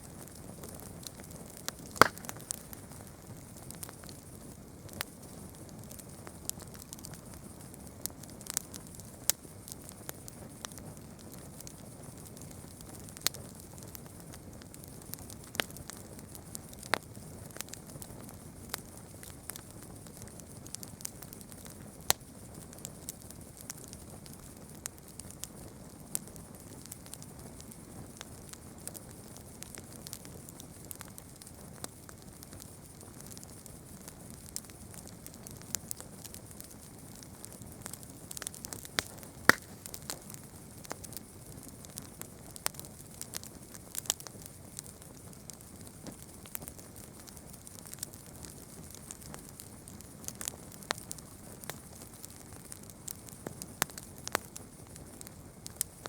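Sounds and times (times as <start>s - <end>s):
low hiss of flame: 0.0s - 20.8s
campfire crackling and popping: 0.0s - 56.0s.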